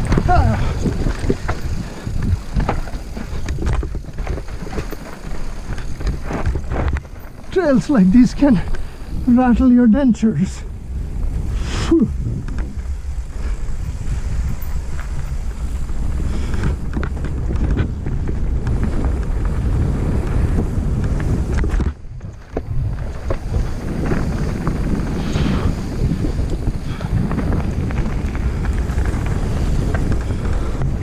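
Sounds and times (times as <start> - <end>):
bike clattering over rocks: 0.0 - 8.9
wind rushing over microphone: 0.0 - 31.0.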